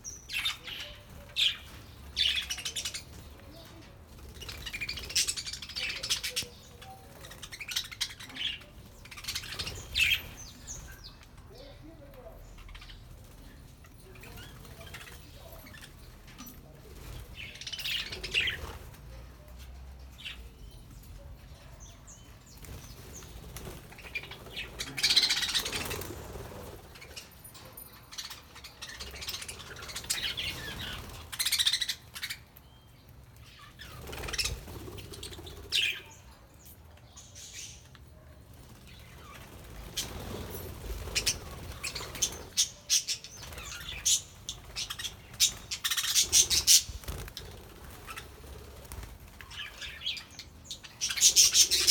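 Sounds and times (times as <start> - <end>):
wings flapping: 22.6 - 27.2, 38.5 - 42.7, 43.4 - 50.0.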